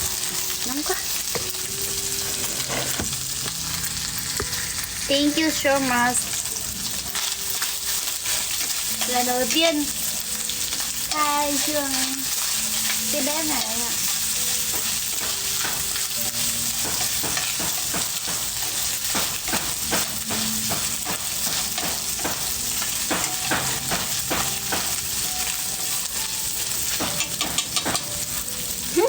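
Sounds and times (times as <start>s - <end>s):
food sizzling: 0.0s - 29.0s
fire popping and crackling: 2.8s - 25.6s.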